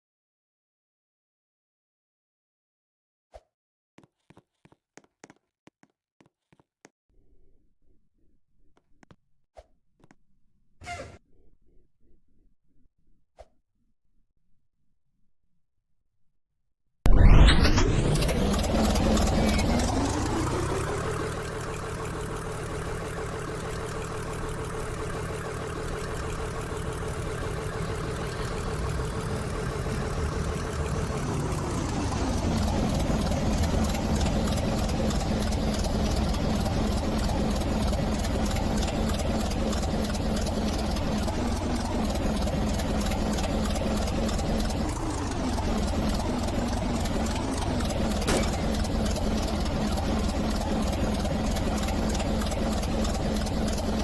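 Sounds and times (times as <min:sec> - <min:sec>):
train running: 0:18.3 - 0:54.0.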